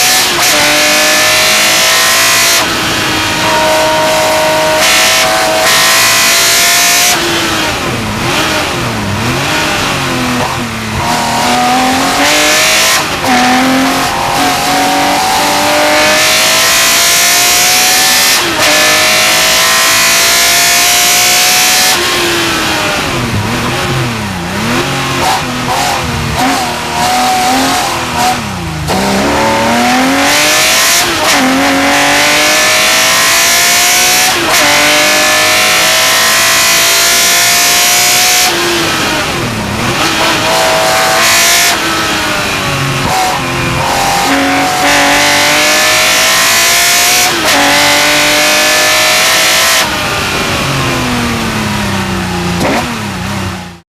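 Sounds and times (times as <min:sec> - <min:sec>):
racing engine at full throttle: 0:00.0 - 0:53.8.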